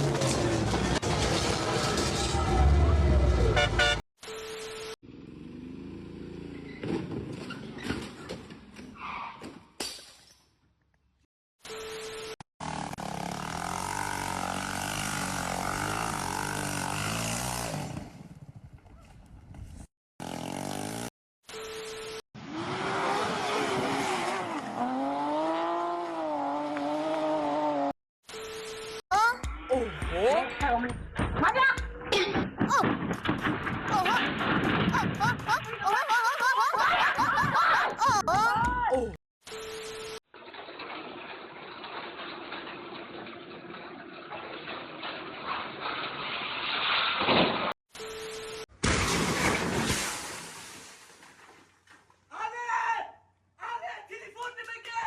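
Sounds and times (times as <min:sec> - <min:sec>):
road vehicle noise: 0:00.0 - 0:09.4, 0:12.0 - 0:29.0
motor vehicle rushing with whine: 0:22.4 - 0:27.9.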